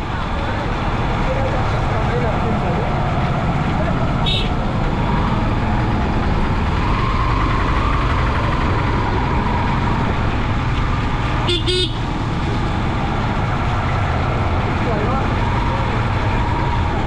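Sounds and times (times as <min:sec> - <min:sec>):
horn toot: 0:04.2 - 0:04.5, 0:11.5 - 0:12.0.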